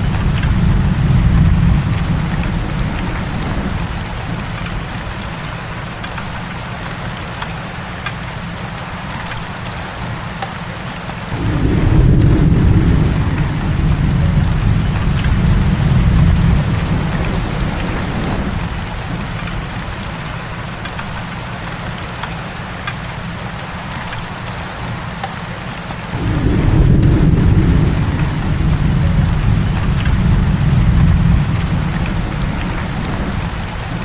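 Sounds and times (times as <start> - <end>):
low thunder rumble: 0.0 - 5.8, 11.3 - 20.7, 26.1 - 34.0
heavy rain falling: 0.0 - 34.0.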